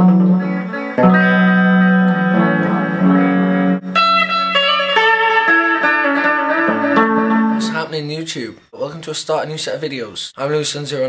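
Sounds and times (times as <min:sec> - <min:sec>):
electric guitar chords with delay: 0:00.0 - 0:07.8.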